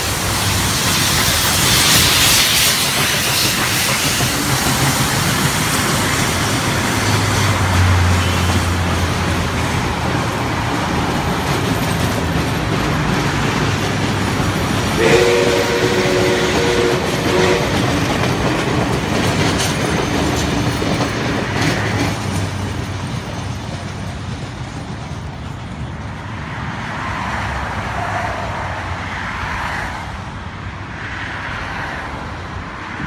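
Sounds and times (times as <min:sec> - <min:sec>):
train wheels clacking over rail joints: 0:00.0 - 0:26.2
train whistle: 0:08.0 - 0:08.8, 0:14.9 - 0:18.1.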